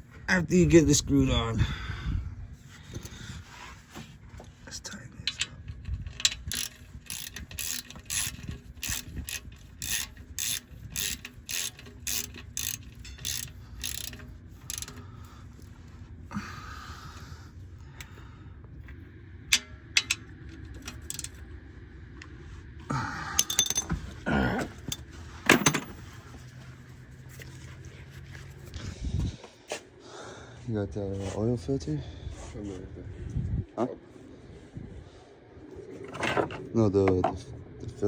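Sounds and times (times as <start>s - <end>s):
ratchet wrench clicking: 5.3s - 15.1s, 19.5s - 21.4s
tools knocking and scraping: 23.4s - 26.2s, 36.0s - 37.4s.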